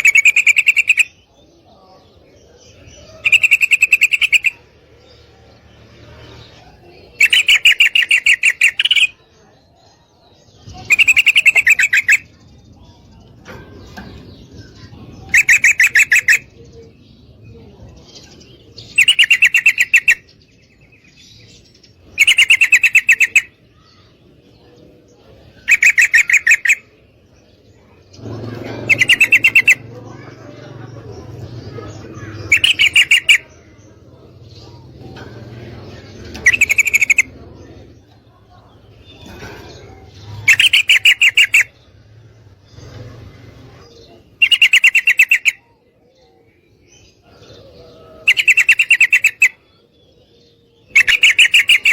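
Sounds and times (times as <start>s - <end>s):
bird chattering calls: 0.0s - 1.2s, 2.7s - 4.8s, 6.0s - 9.2s, 10.5s - 12.4s, 13.3s - 16.9s, 18.6s - 20.4s, 21.9s - 24.6s, 25.4s - 27.0s, 27.6s - 45.9s, 47.2s - 49.9s, 50.8s - 51.9s.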